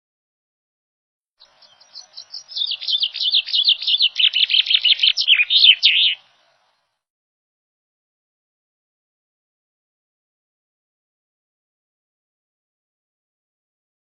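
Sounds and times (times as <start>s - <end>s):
songbird singing: 1.4s - 7.0s.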